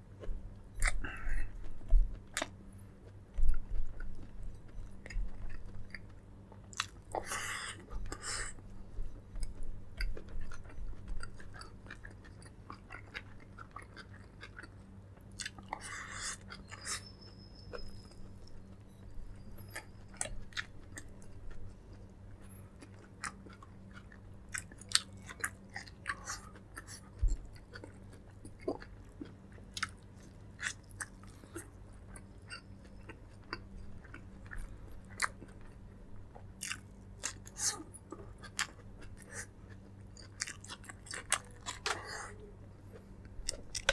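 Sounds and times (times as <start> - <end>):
chewing and biting food: 0.1 - 43.9
sharp mouth clicks and crunches: 43.4 - 43.9.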